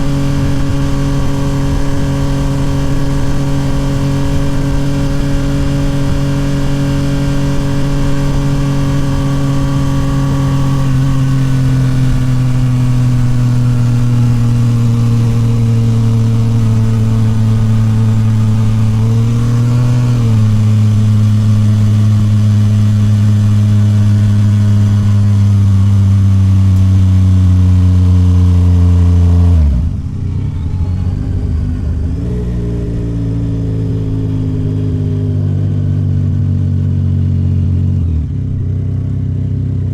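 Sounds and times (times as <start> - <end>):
motorcycle engine under way: 0.0 - 39.9
gear change: 28.7 - 39.1.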